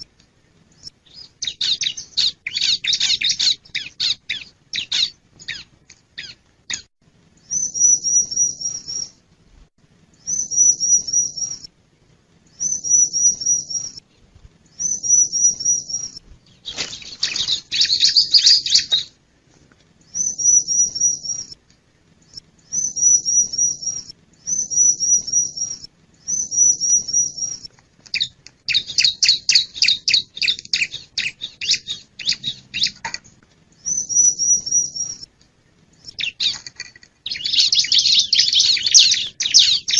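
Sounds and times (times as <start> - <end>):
bird high trilled song: 0.8 - 9.2, 10.2 - 11.7, 12.5 - 14.0, 14.7 - 19.2, 20.0 - 21.6, 22.2 - 33.0, 33.8 - 35.3, 36.0 - 39.9
bird loud sharp chattering: 36.0 - 39.9.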